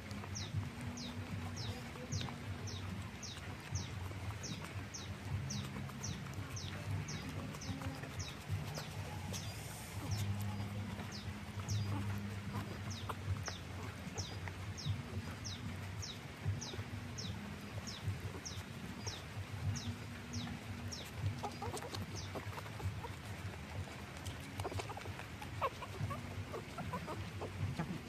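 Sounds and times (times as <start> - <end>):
bird chirping: 0.0 - 28.0.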